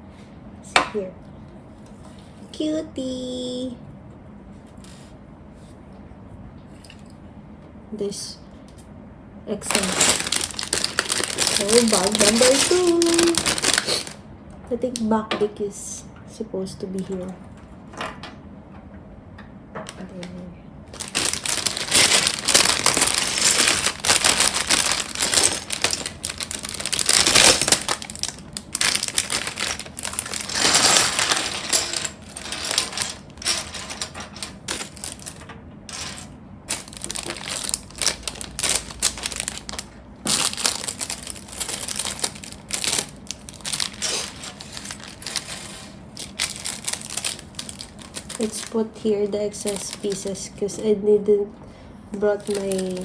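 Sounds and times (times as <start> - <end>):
plastic pieces clicking and clattering: 9.7 - 14.2, 21.0 - 48.7
rustling: 21.0 - 35.4.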